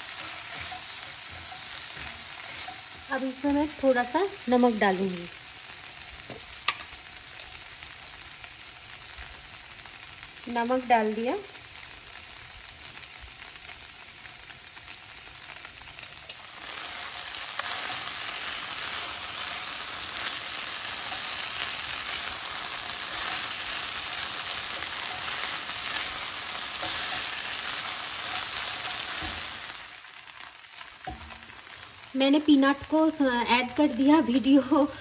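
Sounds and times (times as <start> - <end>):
spatula stirring in a pan: 0.0 - 4.7, 14.8 - 32.1
tapioca and potato sizzling: 0.0 - 35.0.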